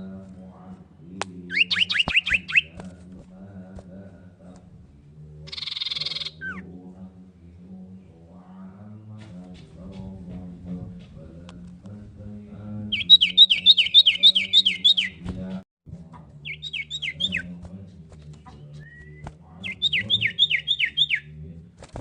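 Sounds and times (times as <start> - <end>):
bird whistling rapid notes: 1.5 - 2.8, 5.5 - 6.6, 12.9 - 15.2, 16.4 - 17.5, 18.8 - 21.3.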